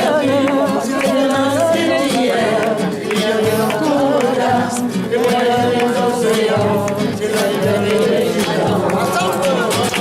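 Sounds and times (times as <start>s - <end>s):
person singing: 0.0s - 10.0s.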